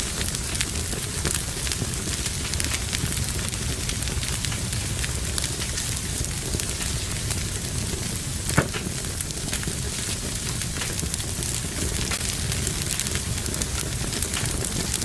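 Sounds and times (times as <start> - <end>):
wood fire crackling: 0.0 - 15.0
loud fire pop: 8.4 - 9.9.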